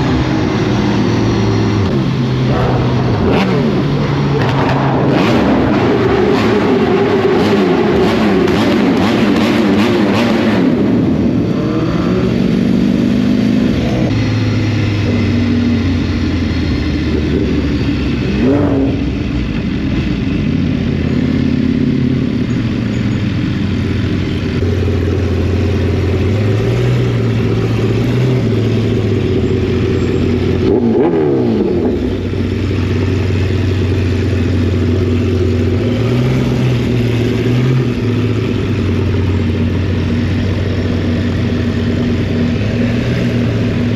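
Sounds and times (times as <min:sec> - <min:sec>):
vehicle engines revving: 0:00.0 - 0:43.9.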